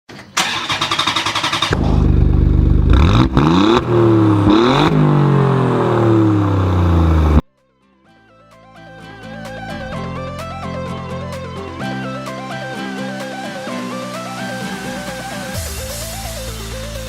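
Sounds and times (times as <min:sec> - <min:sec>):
small motorbike engine revving: 0:00.4 - 0:07.4.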